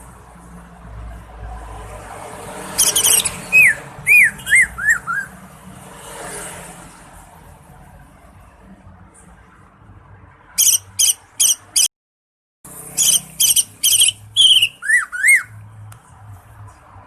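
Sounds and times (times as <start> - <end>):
bird whistling piercing notes: 2.8 - 5.4, 10.6 - 11.9, 13.0 - 15.6.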